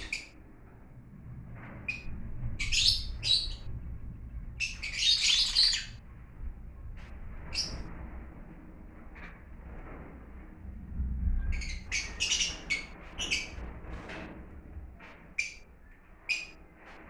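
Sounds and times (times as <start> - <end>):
lovebirds chirping: 4.6 - 6.0, 11.6 - 13.5.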